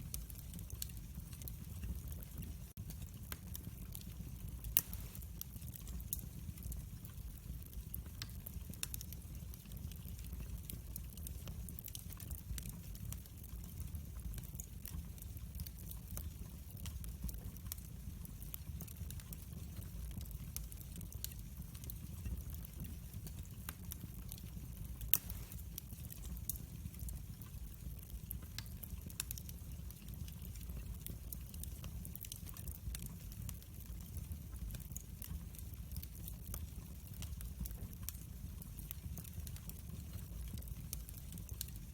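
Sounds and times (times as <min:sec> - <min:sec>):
fireplace fire crackling: 0:00.0 - 0:41.9.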